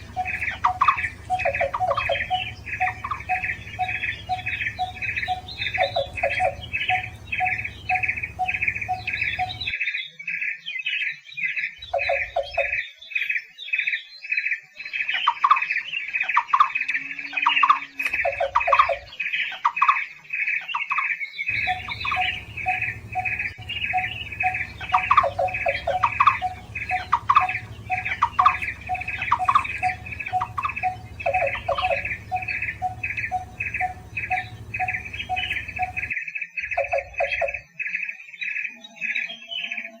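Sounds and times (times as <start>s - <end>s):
background hum: 0.0s - 9.7s, 21.5s - 36.2s
bird fast repeated notes: 0.0s - 9.8s, 21.5s - 37.6s
lower repeated bird call: 0.0s - 10.2s, 21.5s - 37.8s.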